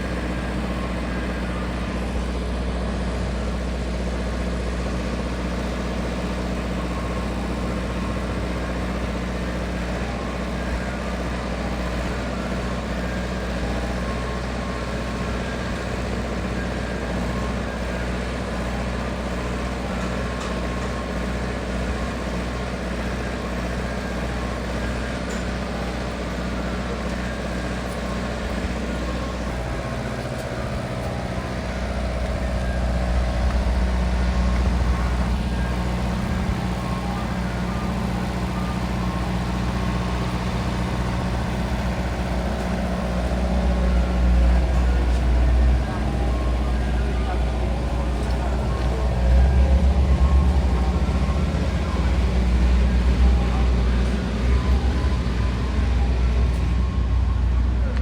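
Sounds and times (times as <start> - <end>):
vehicle engine idling: 0.0 - 58.0.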